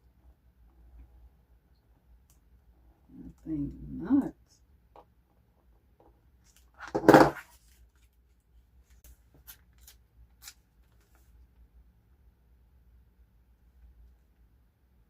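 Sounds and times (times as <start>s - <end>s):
paper-craft materials rustling: 7.4s - 11.5s.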